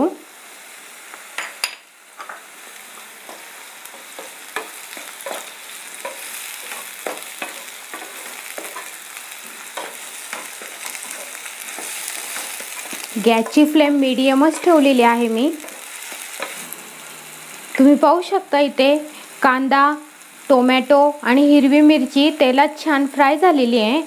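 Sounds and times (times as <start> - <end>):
vegetables sizzling in hot oil: 0.0 - 24.0
wooden spatula scraping a pan: 3.2 - 17.0.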